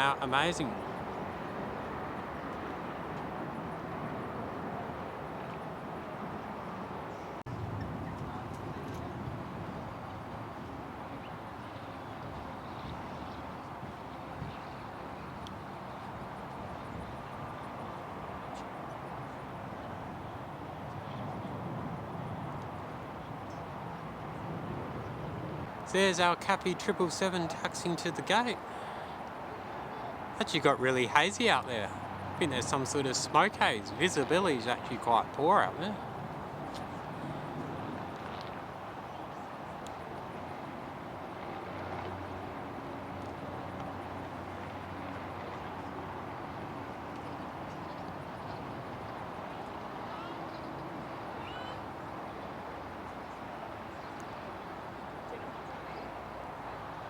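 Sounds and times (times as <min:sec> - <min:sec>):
distant jet engines rumbling: 0:11.7 - 0:51.4.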